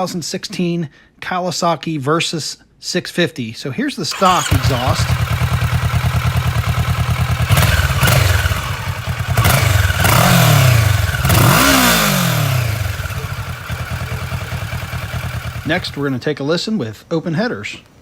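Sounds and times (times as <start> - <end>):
motorcycle engine idling and revving: 4.1 - 16.1.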